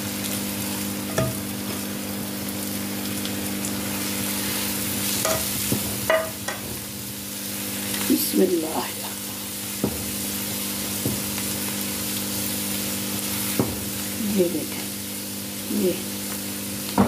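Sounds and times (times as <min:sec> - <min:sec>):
egg and vegetables sizzling: 0:00.0 - 0:17.0
spatula knocking against pan: 0:01.1 - 0:01.4, 0:05.2 - 0:06.6.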